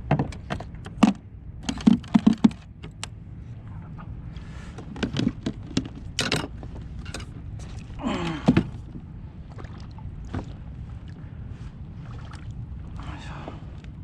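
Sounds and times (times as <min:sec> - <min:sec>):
gear knocks and clicks: 0:00.0 - 0:03.1, 0:04.8 - 0:07.7
wind and water noise: 0:00.0 - 0:14.0.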